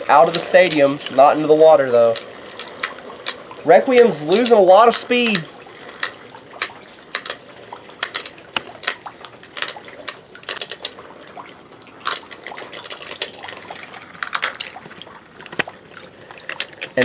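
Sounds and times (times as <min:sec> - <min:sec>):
faint steady hiss: 0:00.0 - 0:17.0
spinning tops clacking: 0:02.0 - 0:07.4.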